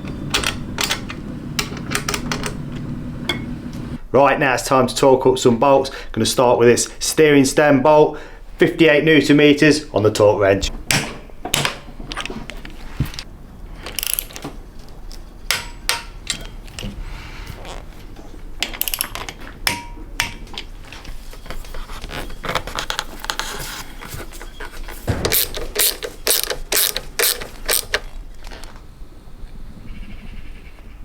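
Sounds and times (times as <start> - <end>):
ratchet wrench clicking: 25.3 - 28.0.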